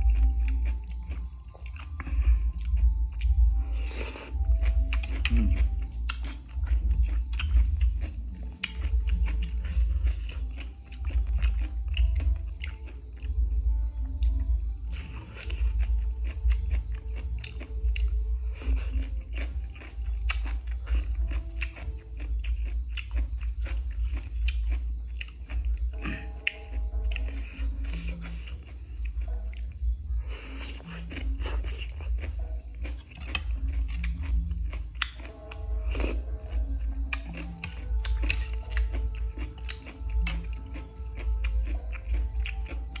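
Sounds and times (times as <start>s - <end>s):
crunchy chewing: 0.0s - 43.0s.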